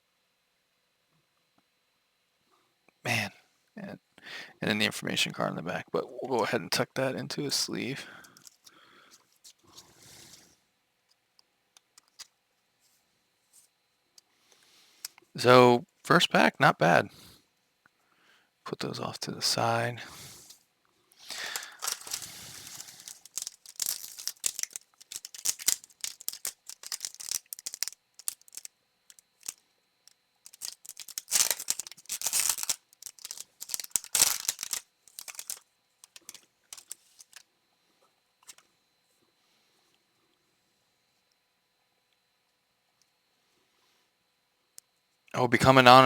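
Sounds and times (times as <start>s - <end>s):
cards rustling and clicking: 8.2s - 10.4s, 21.2s - 29.6s, 30.4s - 37.5s
foil wrapper tearing and crinkling: 21.2s - 37.5s.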